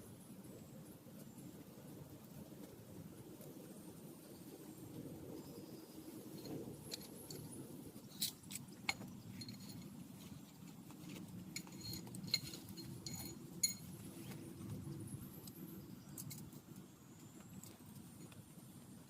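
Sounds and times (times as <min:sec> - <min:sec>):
sharp light clinks: 0:11.6 - 0:14.0.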